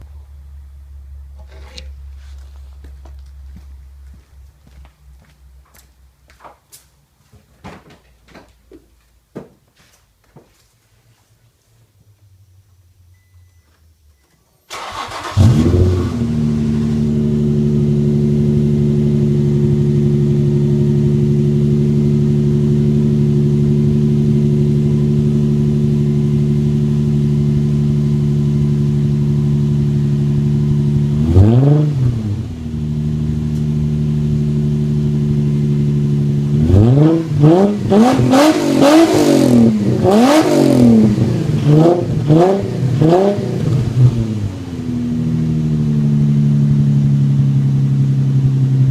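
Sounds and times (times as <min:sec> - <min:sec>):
car engine starting: 0:12.8 - 0:48.9
car engine idling and revving: 0:14.7 - 0:48.9.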